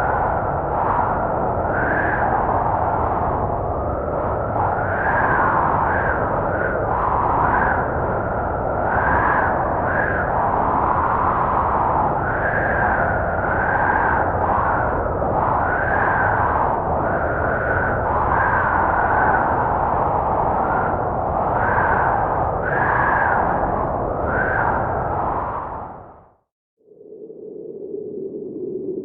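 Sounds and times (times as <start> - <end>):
snowstorm wind howling: 0.0 - 29.0.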